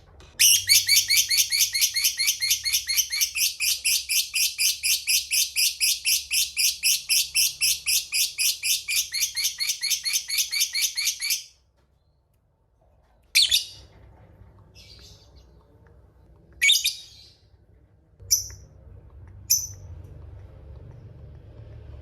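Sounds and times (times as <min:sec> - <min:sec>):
lovebird shrill chirps: 0:00.4 - 0:11.5, 0:19.5 - 0:19.8
low steady hum: 0:13.8 - 0:22.0.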